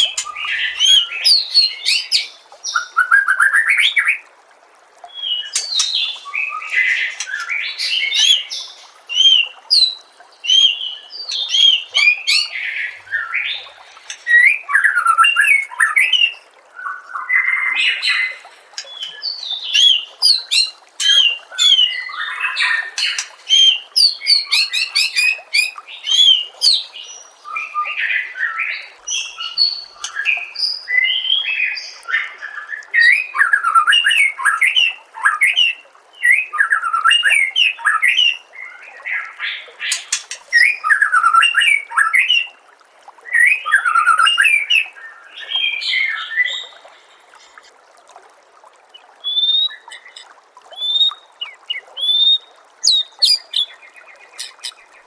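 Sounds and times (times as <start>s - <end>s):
bird singing whistled phrases: 49.2s - 50.2s, 50.8s - 53.8s.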